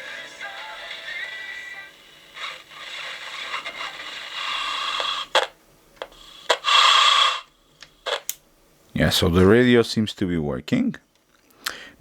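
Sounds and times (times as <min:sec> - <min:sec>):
radio static and hiss: 0:00.0 - 0:08.3.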